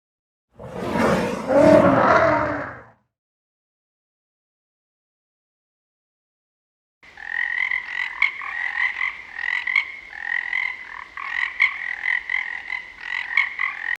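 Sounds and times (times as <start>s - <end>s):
frogs croaking: 7.0s - 14.0s.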